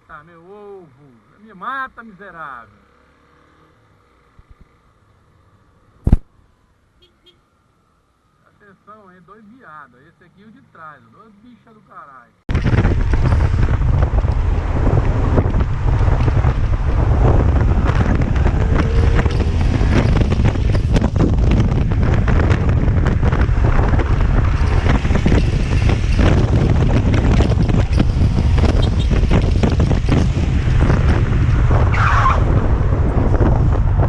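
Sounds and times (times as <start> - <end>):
motorcycle engine and road noise: 0.0 - 34.0
wind buffeting microphone: 12.5 - 34.0.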